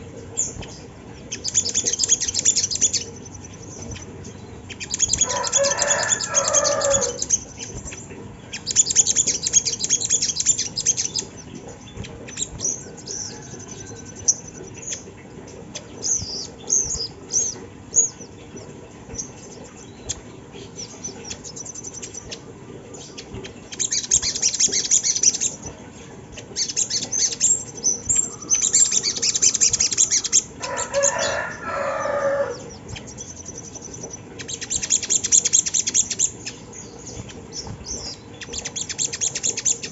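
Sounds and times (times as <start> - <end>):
high buzzy bird trilling: 0.0 - 18.6, 26.4 - 39.9
bird chirps: 0.3 - 25.8, 26.4 - 39.9
descending lower bird call: 4.9 - 7.6.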